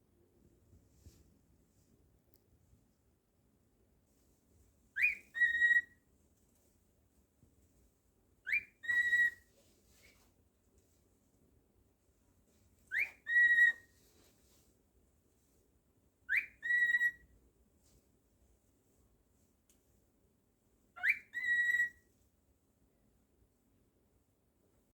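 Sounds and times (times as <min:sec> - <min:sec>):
cockatiel whistling: 0:05.0 - 0:06.0, 0:08.5 - 0:09.4, 0:12.9 - 0:13.9, 0:16.3 - 0:17.3, 0:21.0 - 0:22.0.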